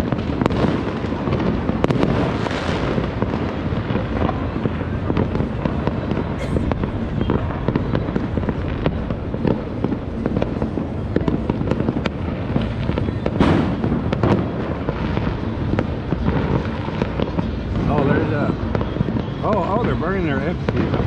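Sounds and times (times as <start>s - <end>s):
distant fireworks crackling and banging: 0.0s - 21.0s
low rumble: 3.1s - 19.4s.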